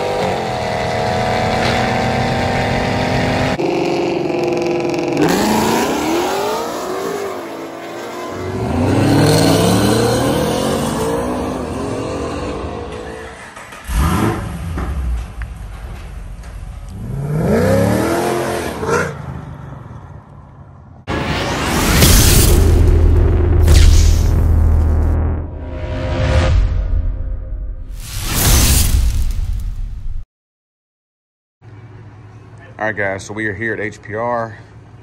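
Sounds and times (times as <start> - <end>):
car engine revving: 0.0 - 15.3, 16.9 - 19.4.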